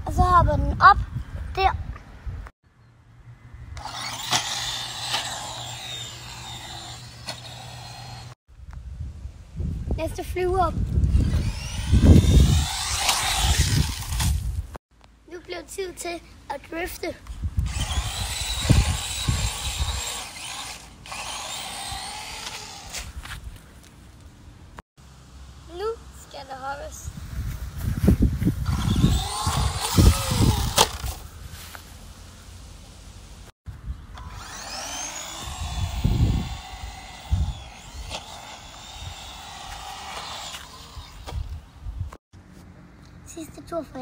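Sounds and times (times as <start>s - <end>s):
remote control car motor whining: 3.8s - 8.4s, 11.0s - 14.4s, 17.6s - 23.1s, 28.6s - 31.2s, 34.1s - 41.6s.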